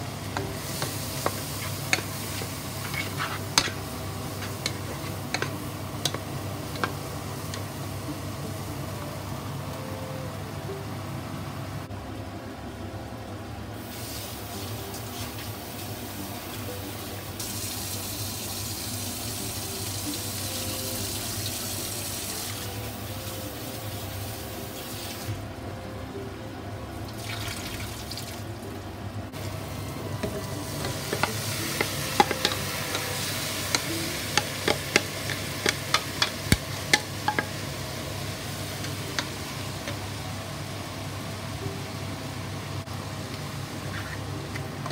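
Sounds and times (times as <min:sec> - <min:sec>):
wooden spatula clacking in pot: 0:33.7 - 0:37.6.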